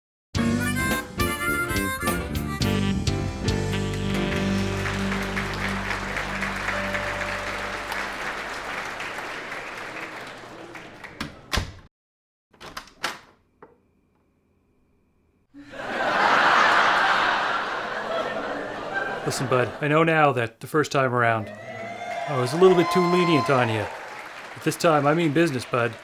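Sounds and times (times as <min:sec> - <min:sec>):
theme tune held chord: 0:02.7 - 0:08.6
audience applause: 0:03.7 - 0:11.5, 0:15.6 - 0:19.9, 0:21.4 - 0:26.0
audience crowd noise: 0:03.8 - 0:11.5, 0:15.6 - 0:19.9, 0:21.4 - 0:26.0.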